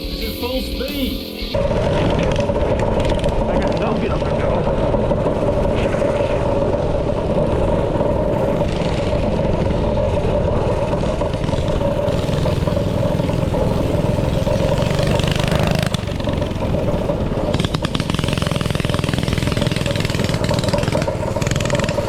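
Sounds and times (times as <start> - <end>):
small engine running: 0.0 - 22.0.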